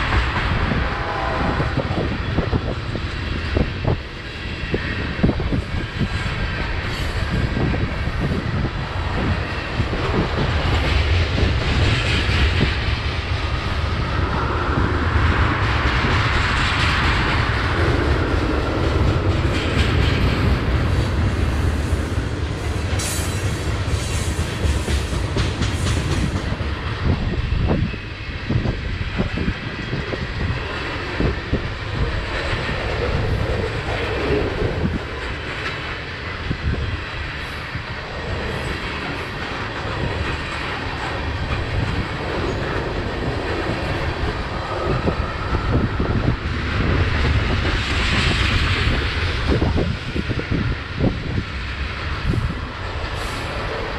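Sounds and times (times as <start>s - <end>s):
freight train rumbling past: 0.0s - 53.9s
wheels clacking over rail joints: 29.2s - 49.9s.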